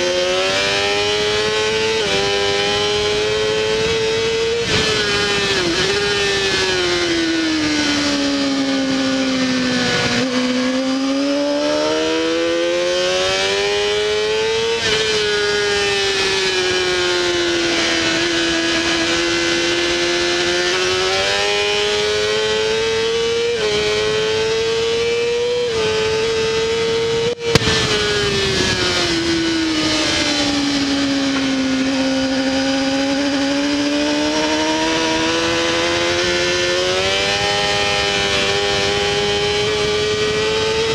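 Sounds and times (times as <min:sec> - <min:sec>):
motorcycle engine accelerating: 0:00.0 - 0:40.9
rushing wind: 0:00.0 - 0:40.9.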